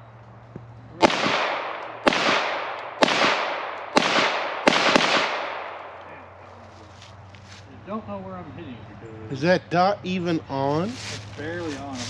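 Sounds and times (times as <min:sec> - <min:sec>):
pistol shots echoing: 0:01.0 - 0:06.3.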